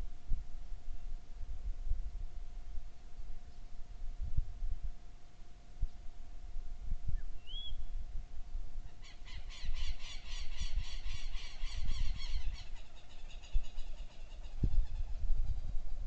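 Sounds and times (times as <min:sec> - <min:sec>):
birds squawking: 0:09.0 - 0:15.2.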